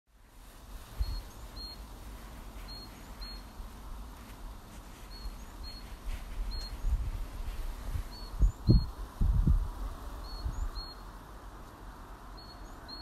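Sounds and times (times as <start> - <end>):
small songbird chirping: 0.9 - 3.7, 4.9 - 9.0, 10.2 - 11.2, 12.3 - 13.0.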